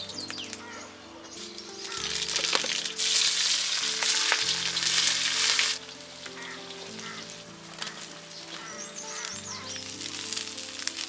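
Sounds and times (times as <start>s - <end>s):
food frying in hot oil: 1.8s - 8.0s, 9.0s - 11.0s
oil spattering: 1.8s - 11.0s.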